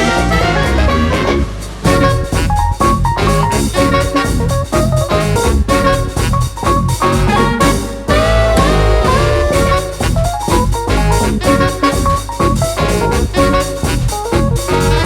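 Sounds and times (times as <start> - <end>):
upbeat jazzy music: 0.0 - 15.0.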